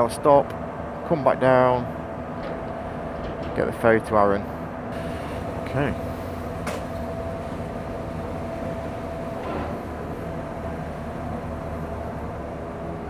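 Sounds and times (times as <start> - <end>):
engine running steadily: 4.4 - 13.0.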